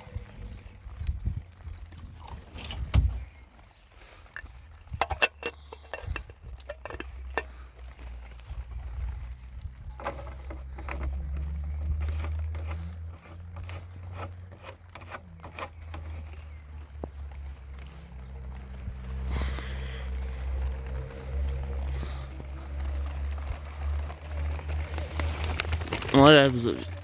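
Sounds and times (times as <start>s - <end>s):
steady low rumble: 16.6s - 26.1s.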